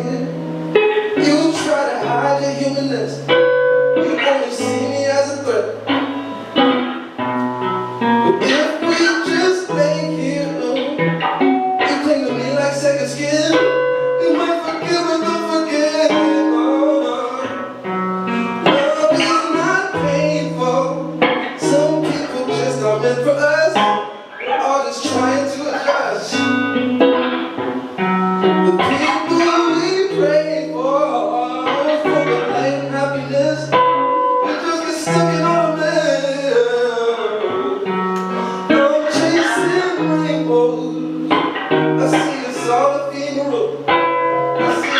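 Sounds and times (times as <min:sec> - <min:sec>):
person singing: 0:00.0 - 0:07.2, 0:08.2 - 0:26.8, 0:27.8 - 0:44.9
acoustic guitar playing: 0:00.0 - 0:44.9.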